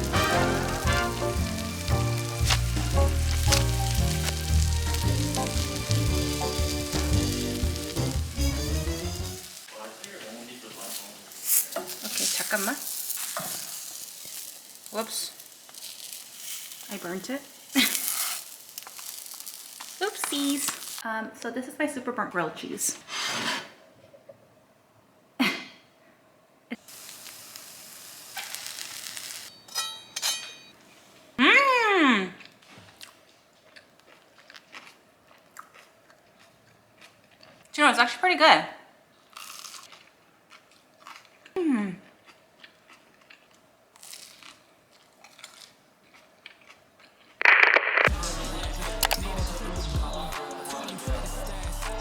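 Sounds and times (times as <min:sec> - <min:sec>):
sandwich sizzling in a frying pan: 0:00.0 - 0:21.0, 0:26.8 - 0:29.6
chewing crunchy sandwich: 0:32.4 - 0:37.7, 0:39.2 - 0:47.4.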